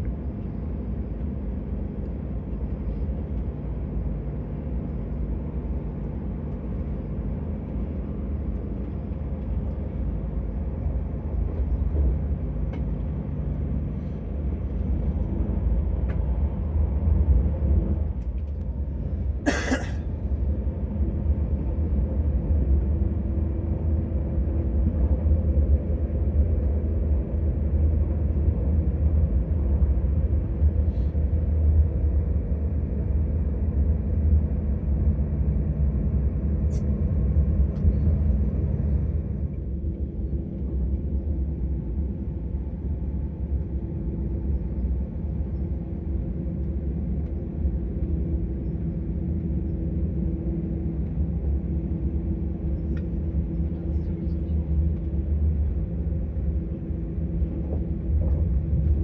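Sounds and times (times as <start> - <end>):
train rumble inside carriage: 0.0 - 59.0.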